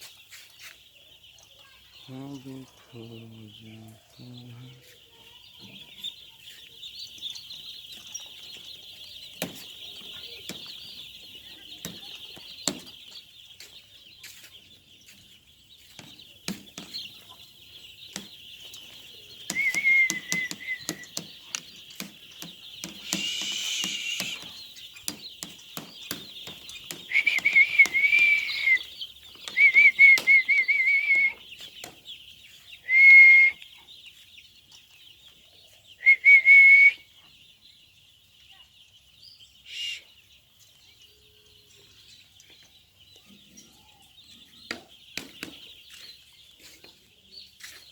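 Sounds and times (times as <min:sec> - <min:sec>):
chickens peeping: 0:00.0 - 0:47.9
chicken squawking: 0:22.9 - 0:24.6
loud wavering whistled calls: 0:23.0 - 0:24.6, 0:27.1 - 0:31.4, 0:39.6 - 0:40.2.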